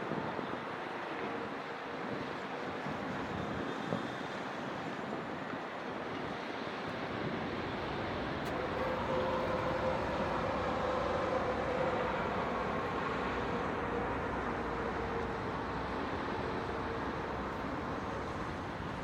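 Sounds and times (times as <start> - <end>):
distant city traffic: 7.4 - 19.0.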